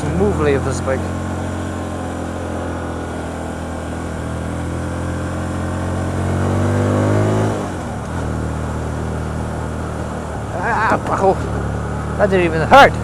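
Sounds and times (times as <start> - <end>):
motorcycle engine pulling away: 0.0 - 12.3.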